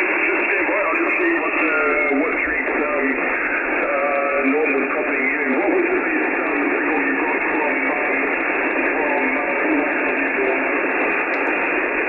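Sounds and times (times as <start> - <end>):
radio receiver hiss: 0.0 - 12.0
weak voice over radio: 0.0 - 12.0.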